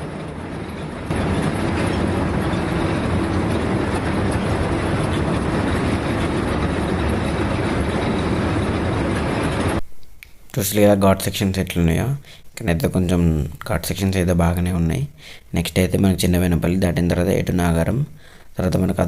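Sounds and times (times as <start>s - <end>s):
lorry engine and road rumble: 0.0s - 9.8s.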